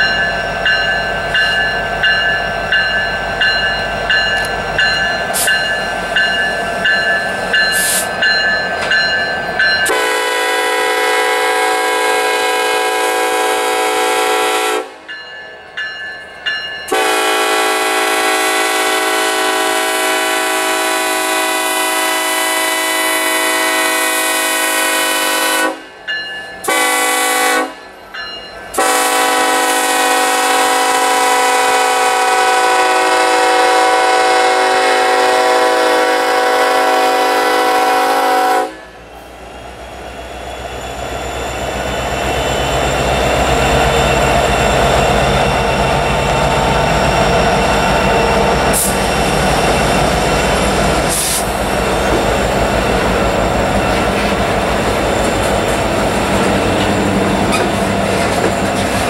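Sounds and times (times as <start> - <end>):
locomotive engines rumbling: 0.0 - 59.0
rail and wheel noise: 0.0 - 59.0
locomotive air horn blasts: 9.9 - 15.0, 16.9 - 25.9, 26.6 - 27.8, 28.7 - 39.0.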